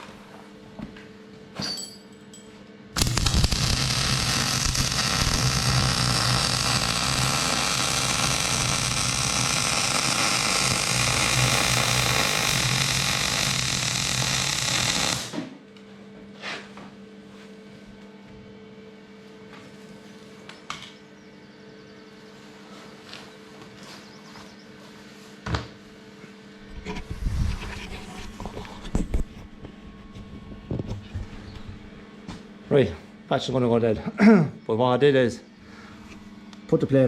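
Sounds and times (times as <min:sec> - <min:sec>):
arc welding crackling hiss: 0:03.0 - 0:15.4.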